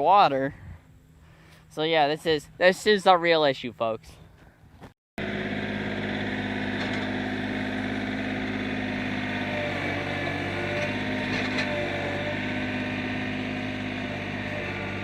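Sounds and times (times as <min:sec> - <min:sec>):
engine running steadily: 0:05.2 - 0:15.0.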